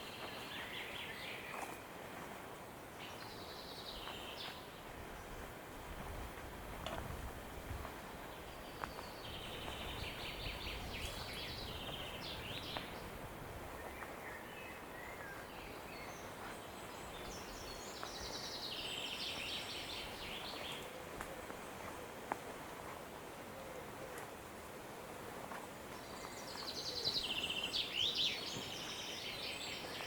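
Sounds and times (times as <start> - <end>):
songbirds singing: 0.0 - 2.0, 2.9 - 6.0, 8.1 - 22.2, 25.5 - 30.0.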